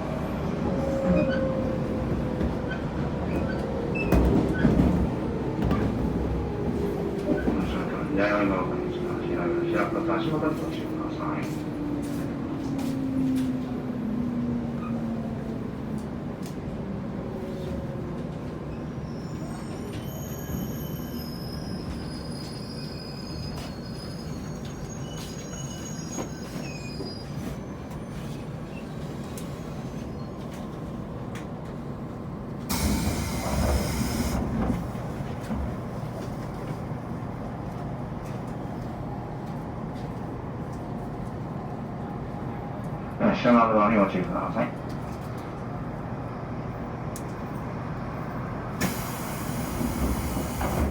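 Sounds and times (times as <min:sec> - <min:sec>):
wheel squeals: 0:18.8 - 0:28.4
train motor whine: 0:32.7 - 0:34.8.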